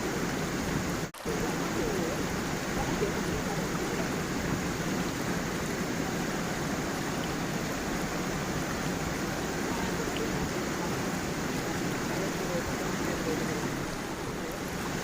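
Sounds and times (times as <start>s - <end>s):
stream rushing over stones: 0.0s - 15.0s.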